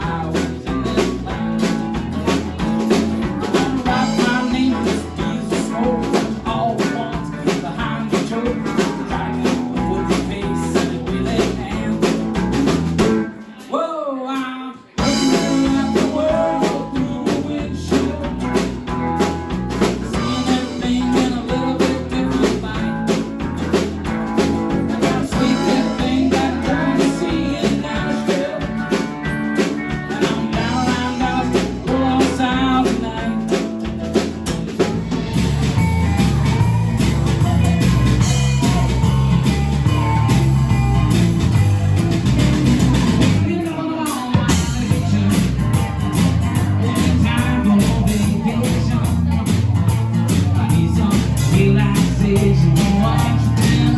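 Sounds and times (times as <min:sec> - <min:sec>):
rock band playing: 0:00.0 - 0:13.8, 0:14.8 - 0:53.9
person singing: 0:00.0 - 0:34.3, 0:36.2 - 0:40.4, 0:42.8 - 0:53.9.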